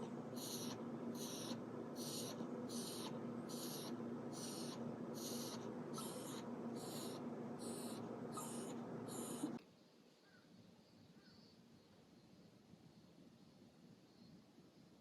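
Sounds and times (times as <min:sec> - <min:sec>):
dog breathing rapidly: 0:00.0 - 0:09.6
steady low hum: 0:00.0 - 0:09.6.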